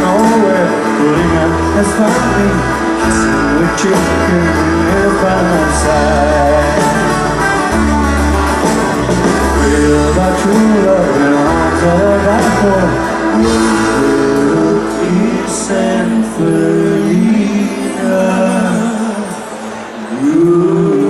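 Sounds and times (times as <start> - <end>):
guitar and bass playing: 0.0 - 20.0
people singing: 9.6 - 21.0.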